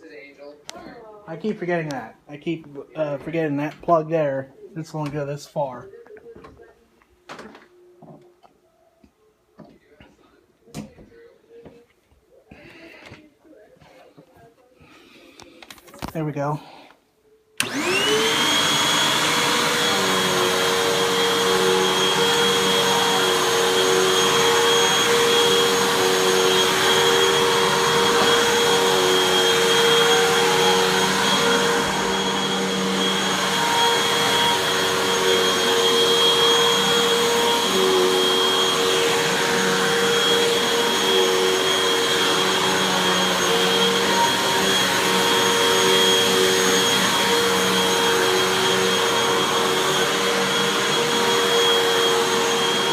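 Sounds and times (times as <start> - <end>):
vacuum cleaner motor whine: 17.6 - 52.9.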